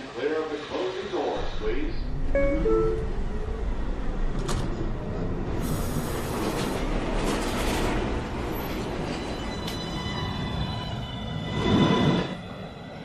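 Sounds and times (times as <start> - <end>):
train pulling out: 0.0 - 13.0
steady rumble: 1.4 - 9.0
train doors shutting: 1.4 - 10.6.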